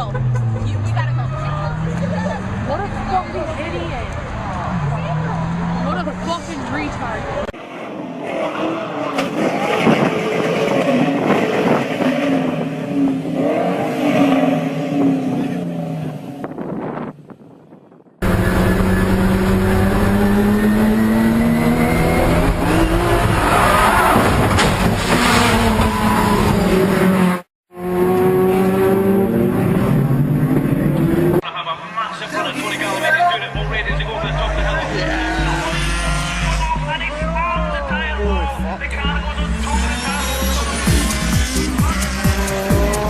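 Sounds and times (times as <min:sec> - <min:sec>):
car engine revving: 0:00.0 - 0:17.1, 0:18.2 - 0:43.0.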